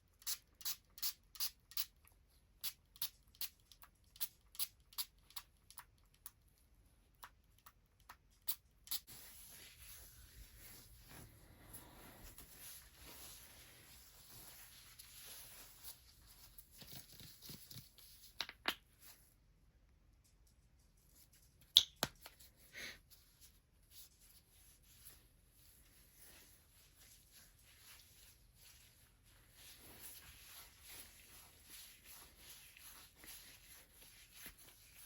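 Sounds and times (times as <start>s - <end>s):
skin rubbing on skin: 9.1s - 17.2s, 26.2s - 35.0s.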